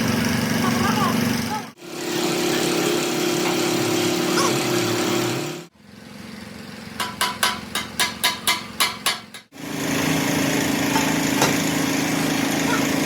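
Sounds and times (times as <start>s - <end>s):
machine motor running: 0.0s - 6.9s, 9.6s - 13.0s.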